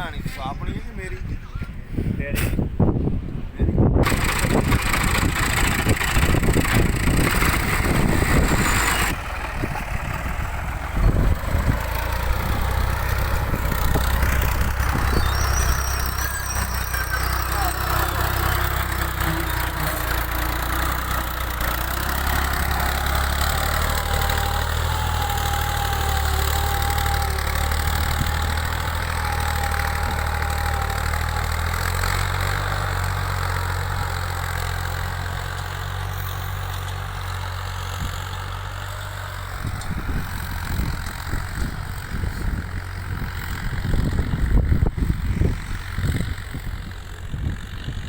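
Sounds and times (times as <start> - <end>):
knocks or wind gusts: 0.0 - 36.1
tractor diesel engine running: 0.0 - 48.0.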